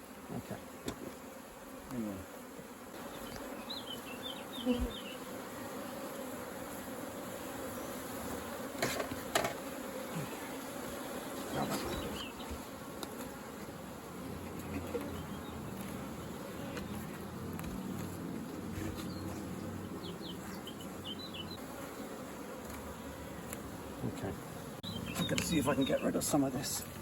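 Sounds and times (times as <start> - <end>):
honeybees buzzing: 0.0 - 27.0.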